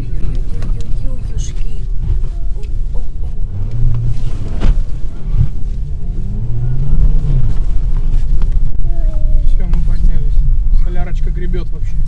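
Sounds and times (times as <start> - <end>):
car engine revving: 0.0 - 12.0
heavy low rumble: 0.0 - 12.0.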